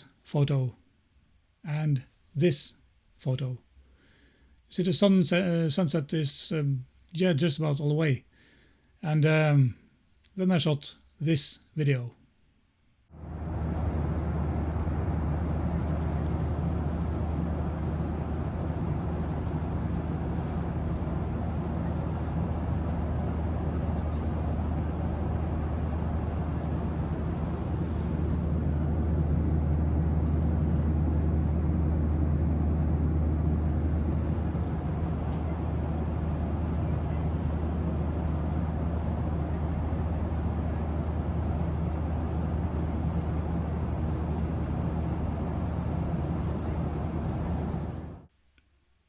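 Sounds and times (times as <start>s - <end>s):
airliner cabin engine drone: 13.2s - 48.3s.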